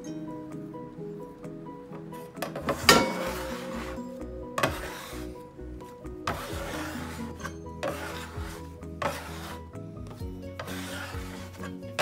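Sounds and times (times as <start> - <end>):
background music: 0.0 - 12.0
bench scraper scraping on wood: 2.5 - 5.4, 6.2 - 12.0.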